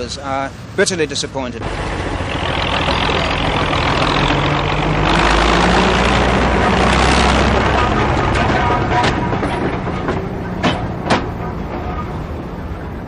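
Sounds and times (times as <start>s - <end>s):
rail vehicle engine humming: 0.0s - 13.0s.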